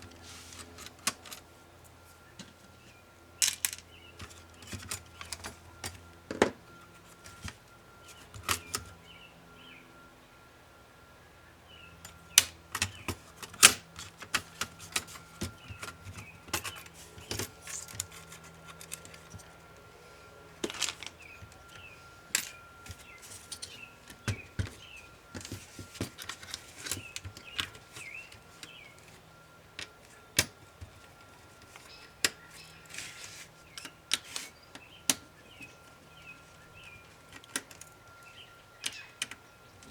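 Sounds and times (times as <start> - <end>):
plastic laptop parts clicking: 12.4 - 19.9.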